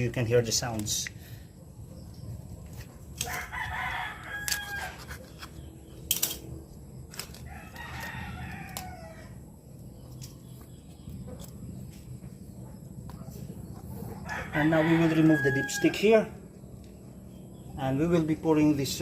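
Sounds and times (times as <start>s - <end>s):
rooster crowing: 3.2s - 5.2s, 7.4s - 9.4s, 14.2s - 16.4s.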